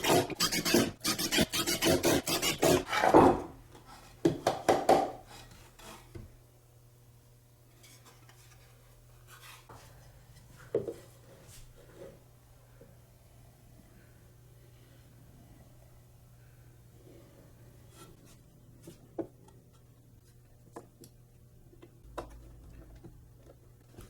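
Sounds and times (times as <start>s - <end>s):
wood being sanded by hand: 0.0s - 2.9s.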